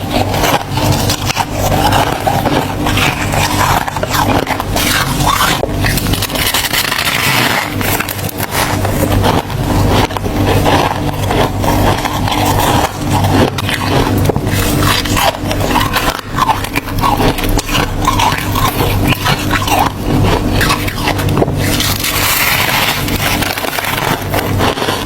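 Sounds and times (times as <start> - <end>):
ice being chewed and crunched: 0.0 - 25.0.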